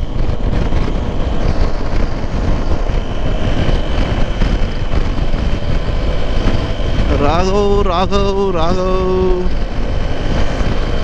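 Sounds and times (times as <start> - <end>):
motorcycle engine running: 0.0 - 11.0
wind rush over microphone: 0.0 - 11.0.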